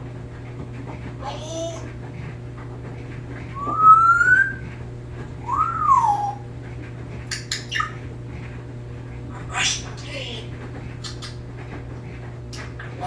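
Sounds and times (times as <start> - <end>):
parrot whistling: 3.6 - 4.6, 5.4 - 6.4, 7.3 - 8.0.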